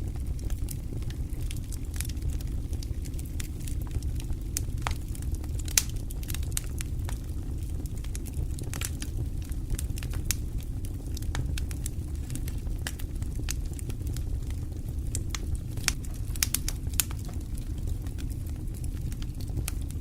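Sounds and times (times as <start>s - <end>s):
low rumble of flames: 0.0s - 20.0s
wood fire crackling: 0.0s - 20.0s
sharp pops from fire: 0.2s - 20.0s.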